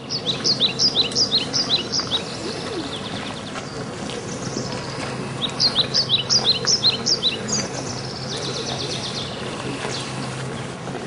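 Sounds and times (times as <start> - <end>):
steady low hum: 0.0 - 11.0
small bird chirping and trilling: 5.4 - 9.4.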